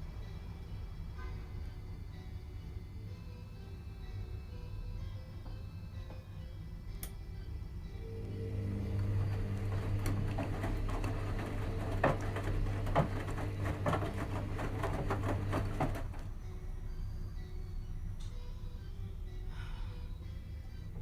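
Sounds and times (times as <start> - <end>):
washing machine motor hum: 8.0 - 17.6
clicks and knocks of tumbling load: 9.0 - 16.3.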